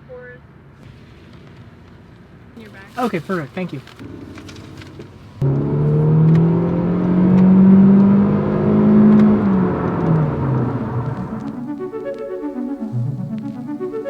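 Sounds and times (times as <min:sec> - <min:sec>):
car engine accelerating: 0:03.9 - 0:14.0.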